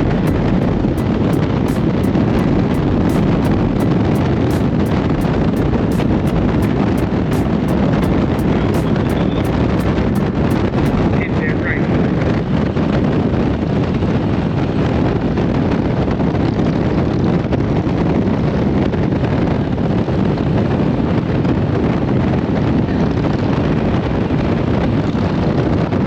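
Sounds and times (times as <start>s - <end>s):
motorcycle engine running: 0.0s - 11.1s.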